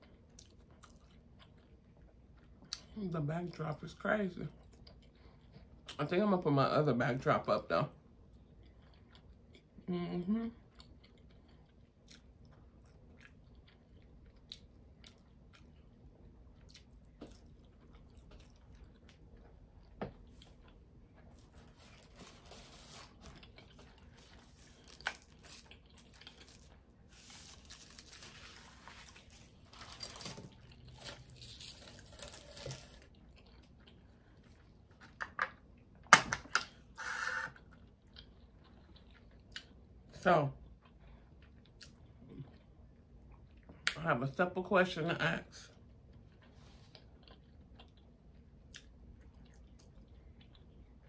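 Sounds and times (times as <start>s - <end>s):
quiet chewing with mouth clicks: 0.0s - 3.0s, 4.5s - 6.0s, 8.2s - 9.8s, 10.6s - 22.2s, 33.0s - 34.8s, 37.6s - 39.9s, 40.6s - 44.0s, 45.7s - 51.0s
paper wrapper rustling: 24.0s - 33.0s.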